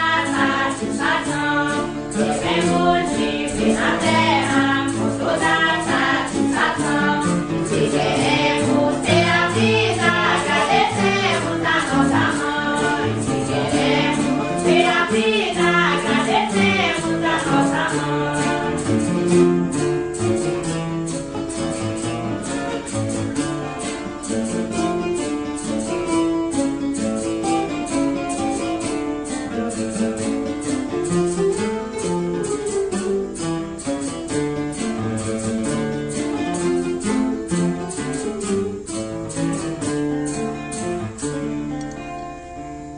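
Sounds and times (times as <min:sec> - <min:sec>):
women singing a hymn: 0:00.0 - 0:18.9
acoustic guitar strumming: 0:00.0 - 0:42.9.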